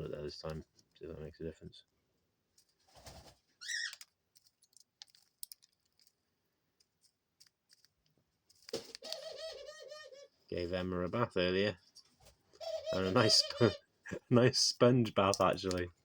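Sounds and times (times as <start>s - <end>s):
dove cooing: 9.1s - 10.3s, 12.6s - 13.8s.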